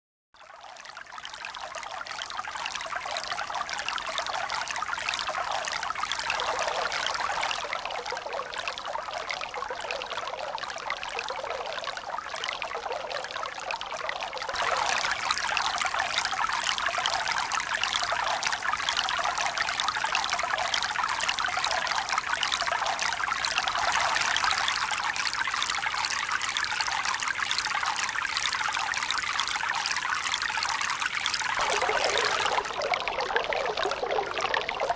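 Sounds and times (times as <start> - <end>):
running water rushing: 14.6 - 17.0, 31.4 - 33.0.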